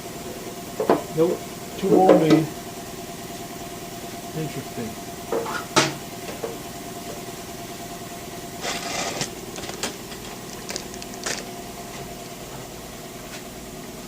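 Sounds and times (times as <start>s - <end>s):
steady machine hum: 0.0s - 14.0s
metal tools clanking and rattling: 8.6s - 11.5s.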